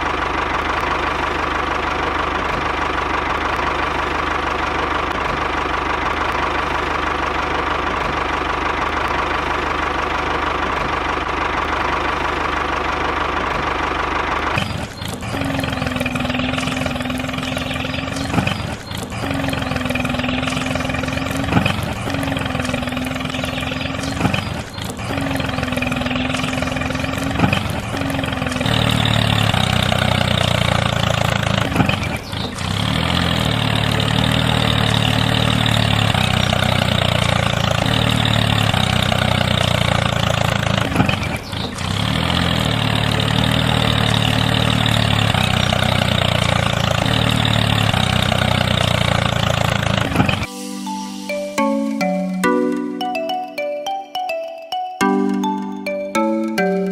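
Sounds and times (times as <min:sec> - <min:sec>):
motor running: 0:14.2 - 0:35.8.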